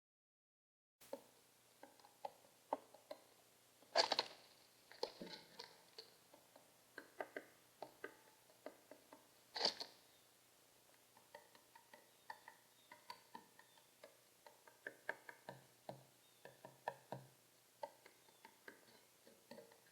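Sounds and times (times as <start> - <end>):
pigeon taps and clicks: 5.0 - 9.9, 11.1 - 19.9.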